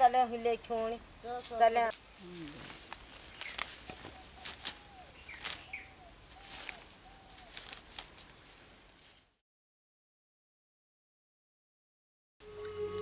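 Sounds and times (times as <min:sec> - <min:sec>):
high chirps: 0:02.2 - 0:07.9.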